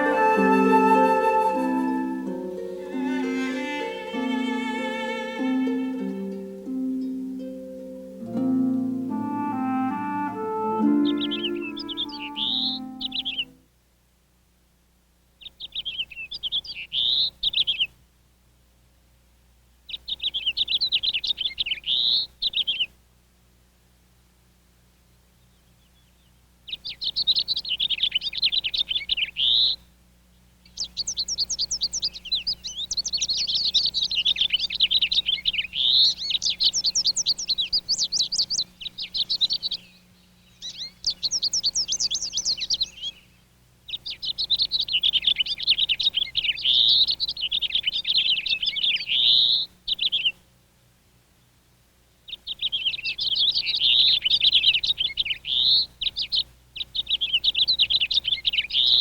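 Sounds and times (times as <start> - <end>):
songbird warbling: 0.0 - 7.4, 8.1 - 13.6, 25.8 - 29.8, 30.6 - 50.4.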